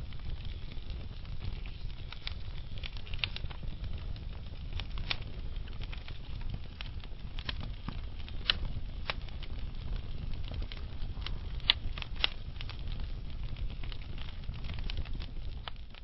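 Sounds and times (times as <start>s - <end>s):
burning logs popping: 0.0s - 16.0s
low fire rumble: 0.0s - 16.0s
wood fire crackling: 0.0s - 16.0s.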